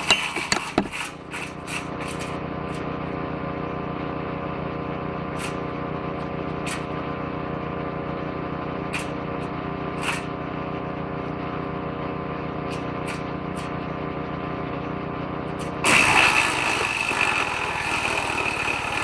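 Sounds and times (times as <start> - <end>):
woodchipper shredder running: 0.0 - 19.0.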